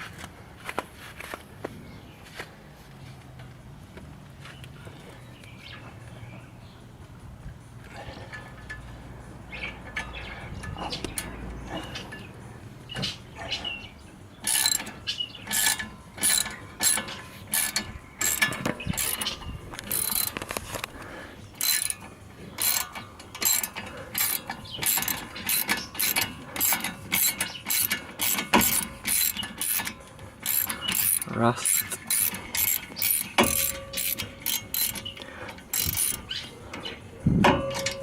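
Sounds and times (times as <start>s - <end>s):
hand ratchet clicking: 14.4s - 36.9s.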